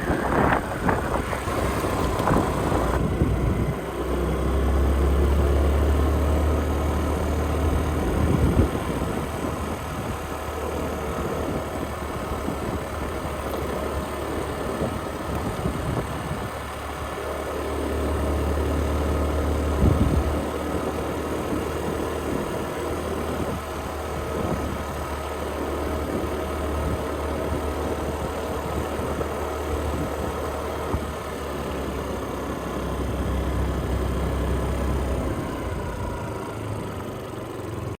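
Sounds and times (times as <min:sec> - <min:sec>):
wind noise: 0:00.0 - 0:03.9, 0:07.7 - 0:17.1, 0:19.6 - 0:31.2
motorcycle engine running: 0:00.0 - 0:38.0.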